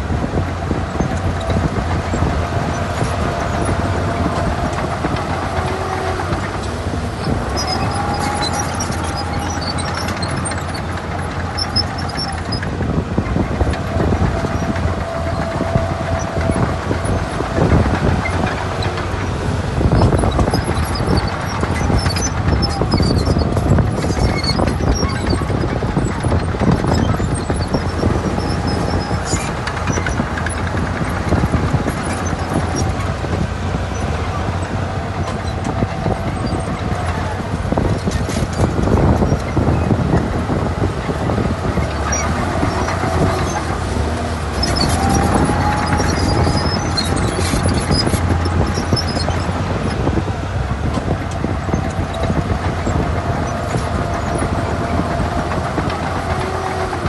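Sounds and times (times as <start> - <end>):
diesel earthmoving machinery running: 0.0 - 57.0
machinery clatter: 0.0 - 57.0.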